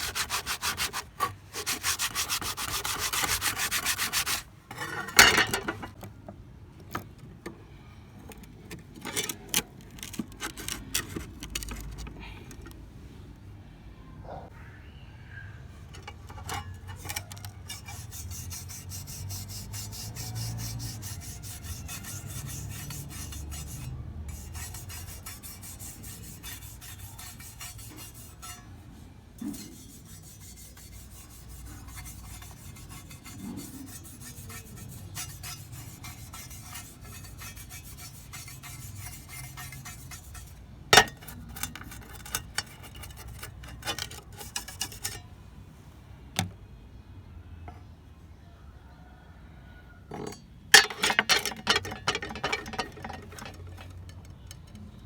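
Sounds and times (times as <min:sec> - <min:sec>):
trowel rubbing strokes: 0:00.0 - 0:05.2, 0:16.5 - 0:28.6, 0:29.4 - 0:45.2, 0:50.8 - 0:54.1.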